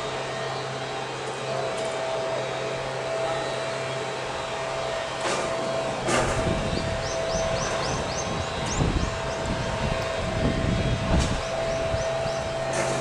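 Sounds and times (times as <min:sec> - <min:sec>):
wind buffeting microphone: 0:04.8 - 0:13.0
strong wind rushing: 0:06.1 - 0:12.6.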